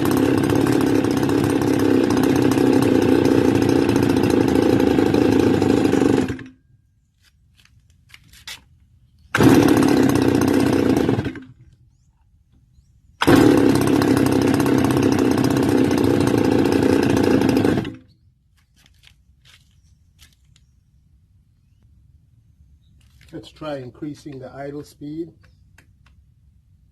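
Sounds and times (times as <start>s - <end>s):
brush cutter engine catching and dying: 0.0s - 6.6s, 9.3s - 11.8s, 13.2s - 18.1s.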